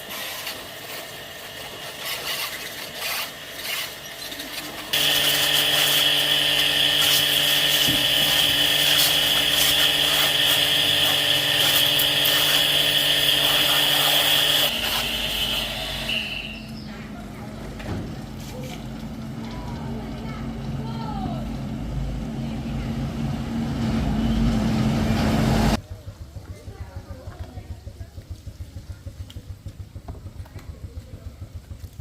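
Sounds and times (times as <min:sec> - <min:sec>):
power tool whining: 0:00.0 - 0:16.8
hand scraping and rubbing: 0:01.7 - 0:05.0.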